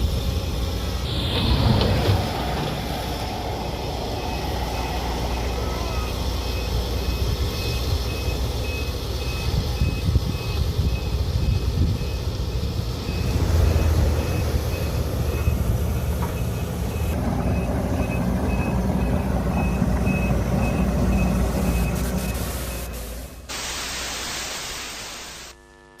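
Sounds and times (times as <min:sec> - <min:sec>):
diesel machinery running: 0:00.0 - 0:23.5
bright hiss: 0:22.0 - 0:25.6.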